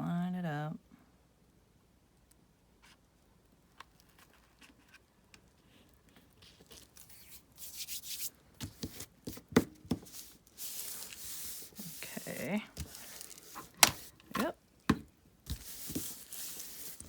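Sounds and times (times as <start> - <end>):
paper rustling: 3.9 - 14.5, 15.5 - 17.0.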